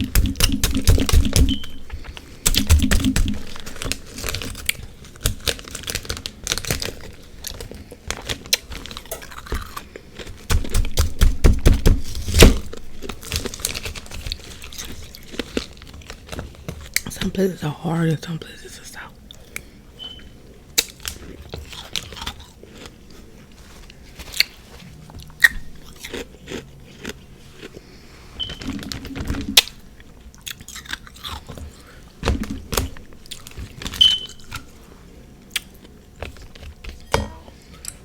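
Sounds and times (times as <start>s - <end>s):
crunchy chewing of frozen food: 0.0s - 17.4s, 19.2s - 38.0s.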